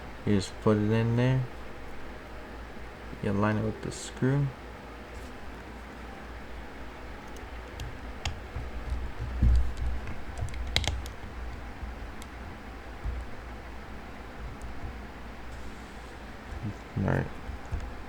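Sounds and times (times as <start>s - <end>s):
dull thump: 7.8s - 18.0s.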